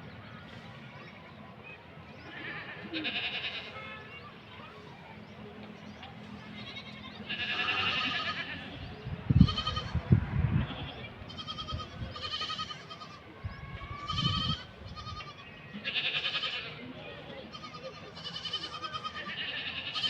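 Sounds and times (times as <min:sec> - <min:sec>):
short bleat-like animal calls: 0:02.3 - 0:04.0, 0:06.6 - 0:10.0, 0:10.6 - 0:13.2, 0:14.0 - 0:16.8, 0:17.5 - 0:20.0.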